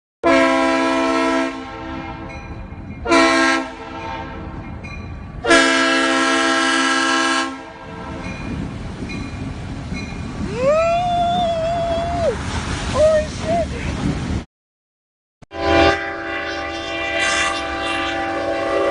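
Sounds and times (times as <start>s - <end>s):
locomotive air horn blasts: 0.2s - 2.3s, 3.0s - 4.6s, 5.4s - 8.2s, 15.5s - 18.9s
passing train rumble: 0.2s - 14.4s, 15.5s - 18.9s.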